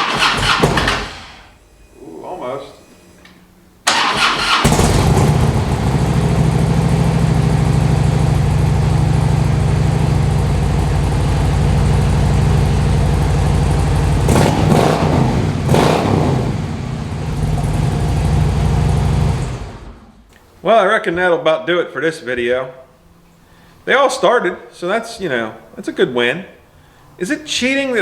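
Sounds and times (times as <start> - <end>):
motorcycle engine idling: 4.6 - 19.6
motorcycle throttle blips: 4.7 - 19.5.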